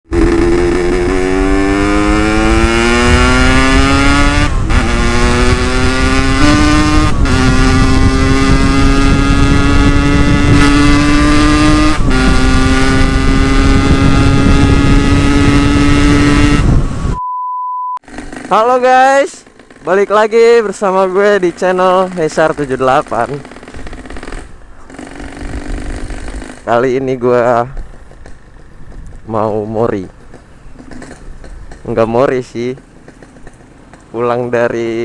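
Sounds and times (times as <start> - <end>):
motorcycle engine revving: 0.0 - 17.2, 18.0 - 35.0
short steady beep: 17.1 - 18.0.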